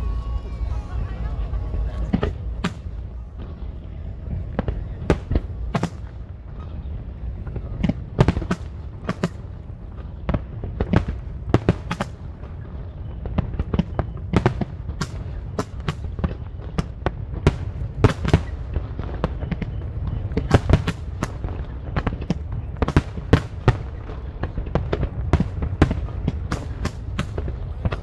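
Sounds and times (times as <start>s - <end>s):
low rumble: 0.0s - 8.3s
fireworks bangs and crackles: 0.0s - 28.0s.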